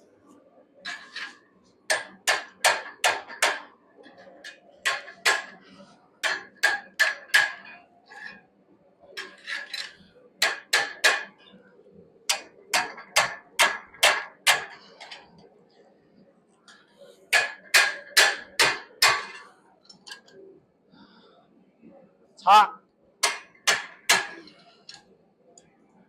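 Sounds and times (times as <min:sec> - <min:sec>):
hammer striking hot iron on anvil: 0:01.9 - 0:03.7, 0:04.8 - 0:05.6, 0:06.2 - 0:07.8, 0:10.4 - 0:11.4, 0:12.3 - 0:14.8, 0:17.3 - 0:19.4, 0:23.2 - 0:24.4.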